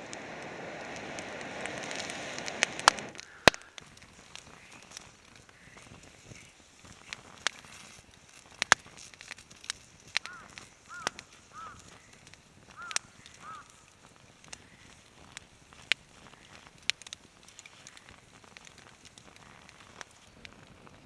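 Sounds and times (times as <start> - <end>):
campfire crackling and popping: 0.0 - 21.0
bird calls: 10.2 - 13.9.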